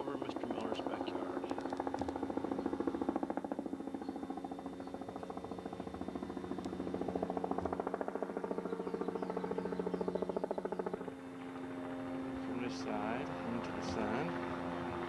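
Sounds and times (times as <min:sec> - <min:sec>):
helicopter engine drone: 0:00.0 - 0:15.0
helicopter rotor chop: 0:00.0 - 0:15.0.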